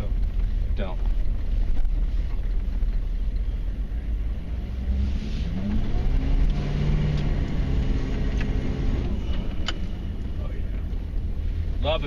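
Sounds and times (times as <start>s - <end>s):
diesel truck engine revving: 3.7s - 12.0s.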